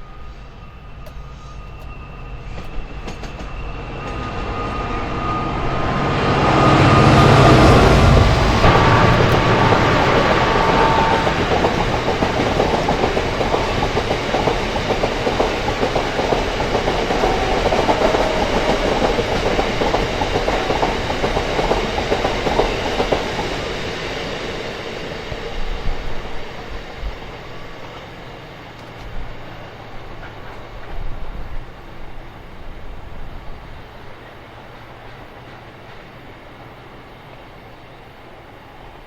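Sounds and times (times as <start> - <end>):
train wheels clattering over rail joints: 7.5 - 23.6.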